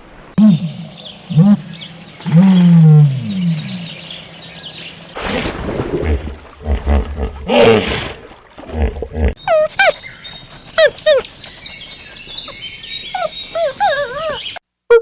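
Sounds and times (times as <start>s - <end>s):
hippopotamus bellowing grunts: 0.4s - 4.1s.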